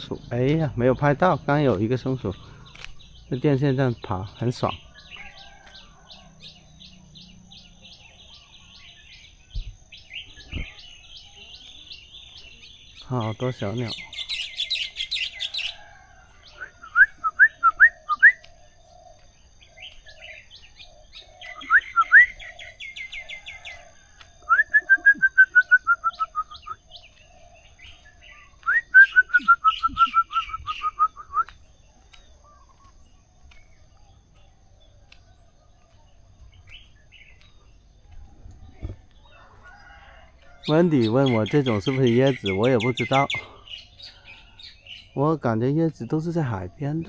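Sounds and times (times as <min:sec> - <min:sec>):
songbird upswept whistled notes: 0:14.0 - 0:18.7, 0:19.6 - 0:23.7, 0:24.4 - 0:33.0
high rapid bird trill: 0:40.6 - 0:46.9.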